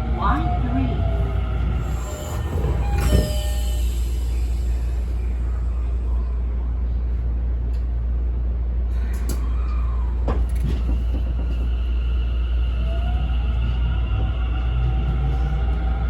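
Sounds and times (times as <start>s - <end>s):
train equipment hum: 0.0s - 16.0s
train motor rising whine: 1.3s - 6.1s.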